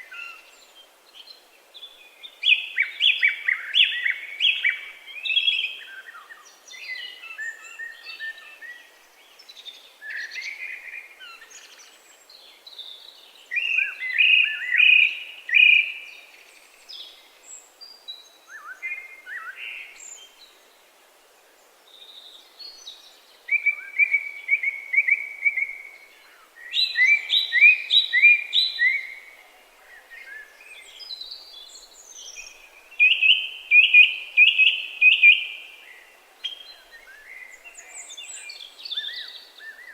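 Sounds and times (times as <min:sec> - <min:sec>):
songbirds chirping and warbling: 0:00.0 - 0:39.9.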